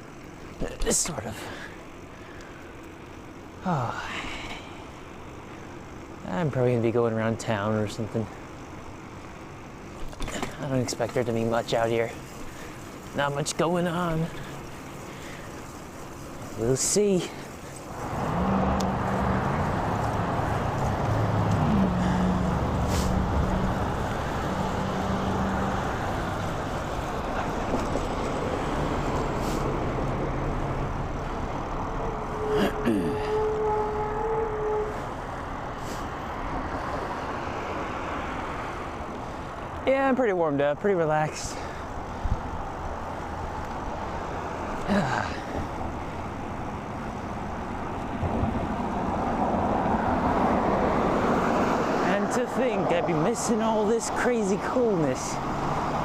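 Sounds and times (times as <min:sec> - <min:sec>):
road noise rumble: 0:00.0 - 0:56.0
vehicle engine humming: 0:00.0 - 0:56.0
bicycle tyre noise: 0:08.6 - 0:37.1
rushing wind: 0:41.7 - 0:44.8, 0:45.4 - 0:56.0.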